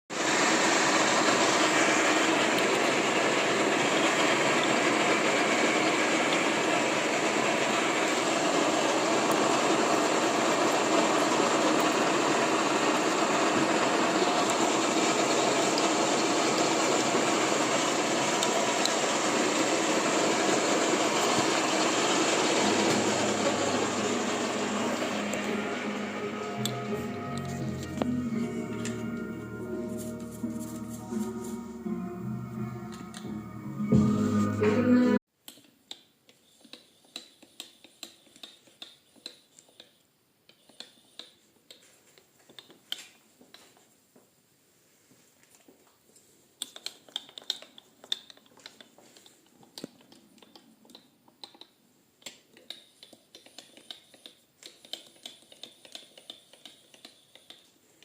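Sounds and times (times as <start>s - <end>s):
milling machine running: 0.1s - 35.1s
low hum: 20.8s - 35.2s.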